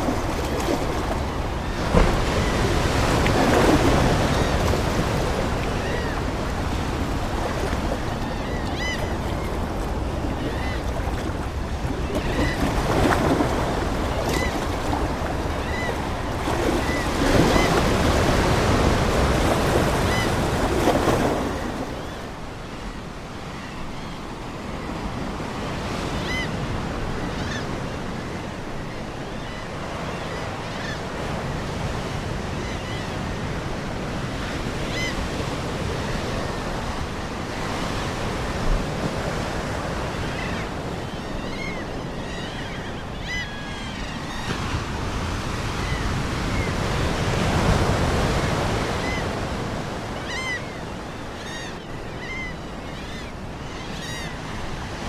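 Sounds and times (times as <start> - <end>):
seagulls calling: 0.0 - 24.3, 39.2 - 55.0
ocean waves washing on shore: 0.0 - 55.0.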